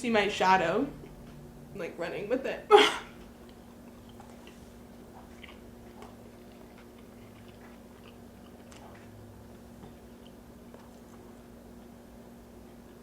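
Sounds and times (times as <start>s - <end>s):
faint steady hum: 0.0s - 13.0s
person chewing: 3.2s - 12.0s.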